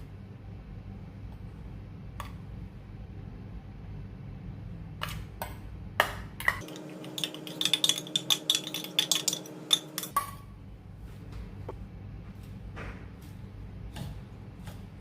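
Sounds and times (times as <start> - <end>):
utensils clinking against a dish: 6.5 - 10.4.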